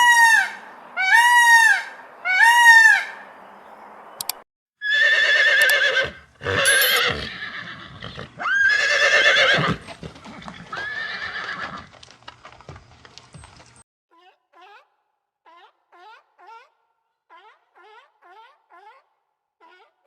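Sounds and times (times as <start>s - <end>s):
horse whinnying: 4.8s - 11.9s.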